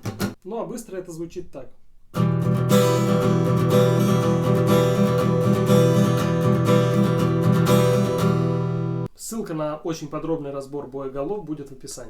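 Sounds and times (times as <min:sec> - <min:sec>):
acoustic guitar strummed fast: 0:00.0 - 0:00.4, 0:02.2 - 0:09.1.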